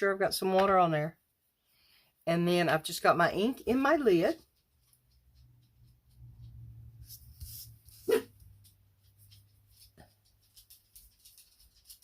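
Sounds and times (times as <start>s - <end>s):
dog barking: 8.0s - 8.4s
dog yip: 8.0s - 8.4s.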